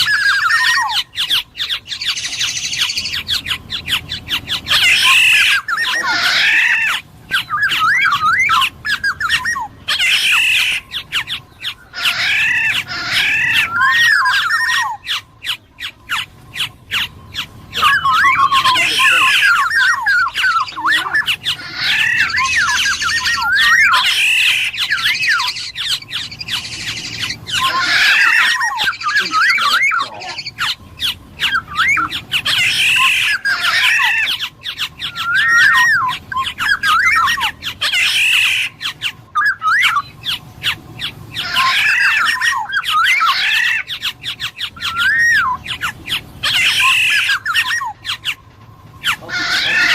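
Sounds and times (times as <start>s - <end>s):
bird singing warbled phrases: 0.0s - 49.9s
harsh clicking bird notes: 0.0s - 49.9s.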